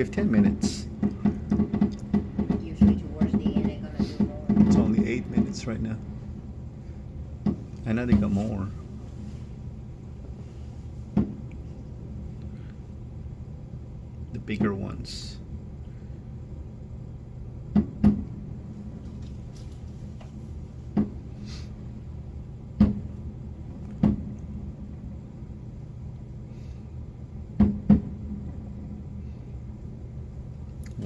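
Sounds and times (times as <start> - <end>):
steady low hum: 0.0 - 31.0
distant firework bangs: 0.2 - 5.8.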